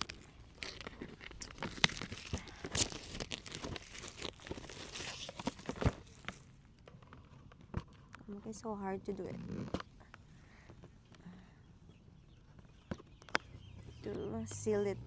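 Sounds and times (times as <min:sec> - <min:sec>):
packaging tearing and crinkling: 0:00.0 - 0:06.6.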